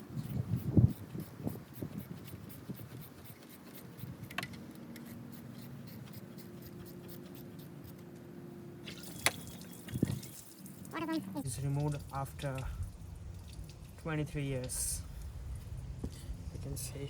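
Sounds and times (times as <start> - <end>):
scraping and rubbing: 0.0 - 8.1.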